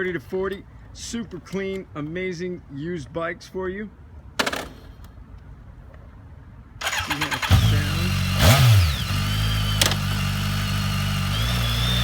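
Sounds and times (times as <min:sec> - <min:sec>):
motorcycle engine idling: 0:06.8 - 0:12.0
motorcycle starter cranking: 0:06.8 - 0:12.0.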